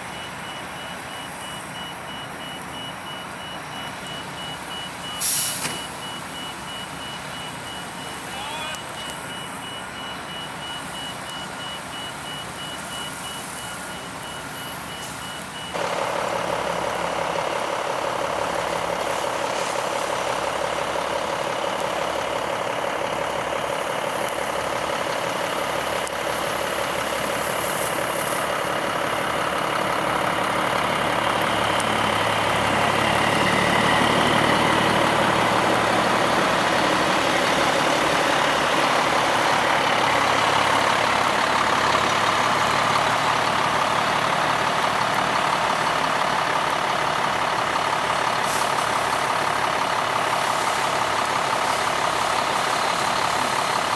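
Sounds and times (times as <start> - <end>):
truck engine running: 0.0 - 53.9
truck reversing alarm beeping: 0.0 - 53.9
deep engine rumble: 15.6 - 53.9.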